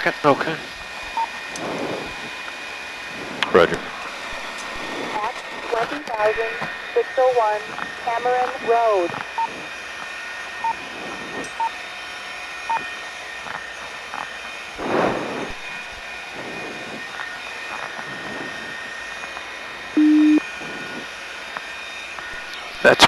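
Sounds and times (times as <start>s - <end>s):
helicopter cabin hiss and hum: 0.0s - 23.0s
low beep: 20.0s - 20.4s
short high beeps: 20.0s - 20.4s.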